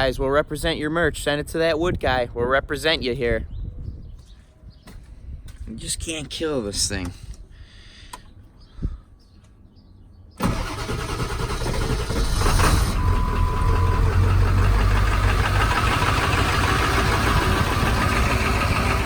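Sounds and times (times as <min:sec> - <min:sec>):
engine running: 0:10.4 - 0:19.0.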